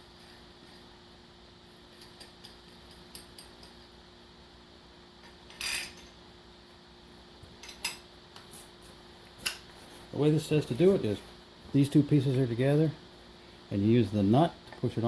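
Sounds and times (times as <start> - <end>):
metal tools clinking: 5.2 - 6.2.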